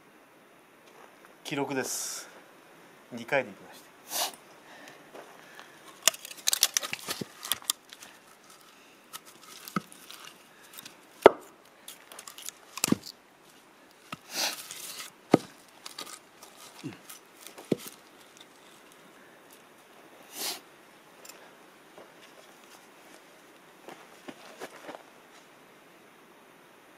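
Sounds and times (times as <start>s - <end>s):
firewood knocking and clattering: 9.4s - 10.2s, 12.1s - 13.1s, 14.1s - 18.6s.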